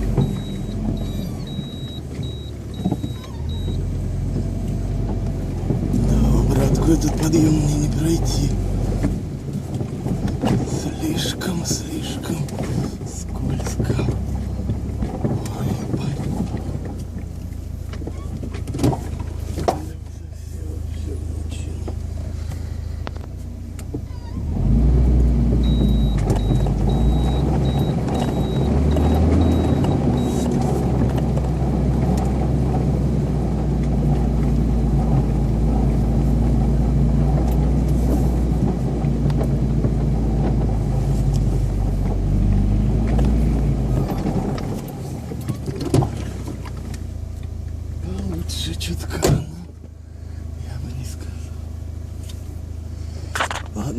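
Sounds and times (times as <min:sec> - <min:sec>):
car engine revving: 0:00.0 - 0:49.7
faint high beep: 0:00.2 - 0:03.8.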